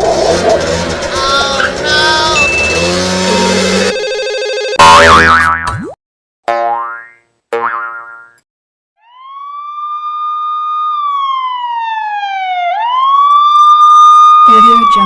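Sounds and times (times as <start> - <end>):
cartoon boing: 4.8 - 8.4
police siren wail: 9.0 - 15.0.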